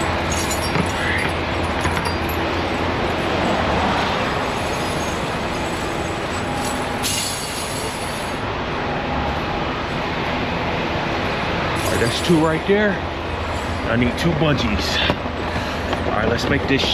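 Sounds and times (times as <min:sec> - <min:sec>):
tire chains clinking: 0:00.0 - 0:08.4, 0:11.8 - 0:15.1
heavy rumble and hiss: 0:00.0 - 0:16.9
sharp metallic clink: 0:04.4 - 0:08.4.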